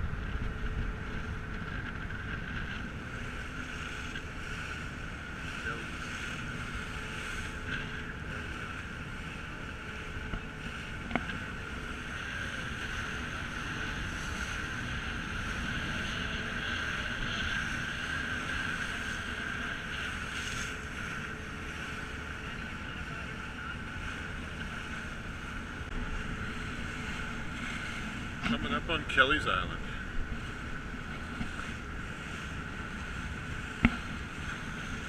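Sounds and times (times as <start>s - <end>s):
wind buffeting microphone: 0.0s - 22.6s
ferry engine drone: 0.0s - 35.0s
water rushing along hull: 0.0s - 35.0s.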